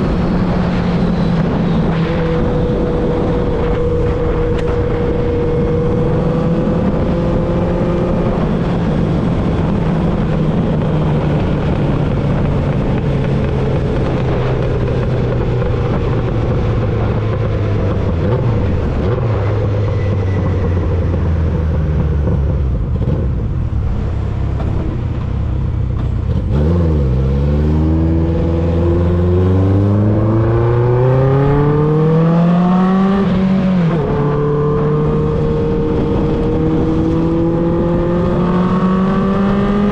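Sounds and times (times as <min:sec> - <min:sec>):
motorcycle engine running: 0:00.0 - 0:26.5.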